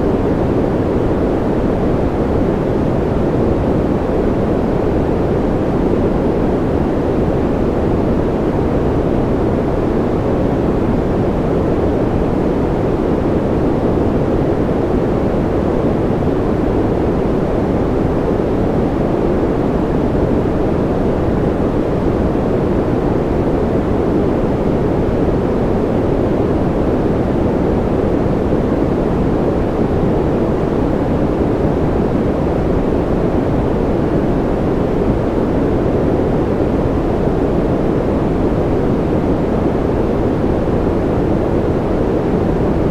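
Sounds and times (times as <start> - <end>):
deep rushing white noise: 0.0 - 42.9.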